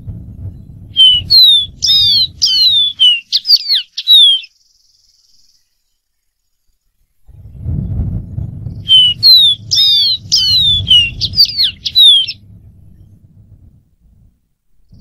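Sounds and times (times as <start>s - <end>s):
low rumble: 0.0s - 3.1s, 7.1s - 15.0s
bird singing whistled notes: 0.4s - 7.0s, 8.7s - 13.2s.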